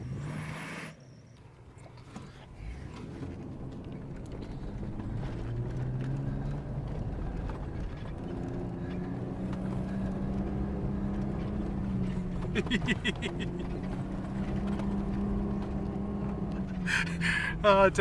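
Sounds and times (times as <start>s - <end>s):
truck engine revving: 4.4s - 17.8s.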